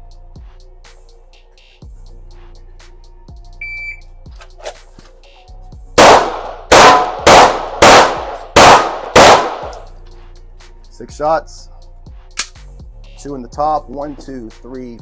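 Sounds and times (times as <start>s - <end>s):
shot timer beep: 3.6s - 4.0s
pistol shots: 6.0s - 9.9s.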